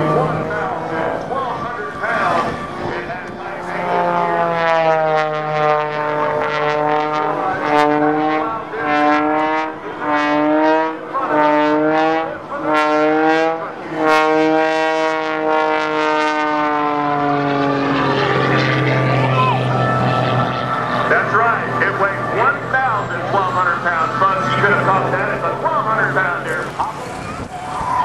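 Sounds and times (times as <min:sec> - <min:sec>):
propeller airplane engine running hard: 0:00.0 - 0:28.0.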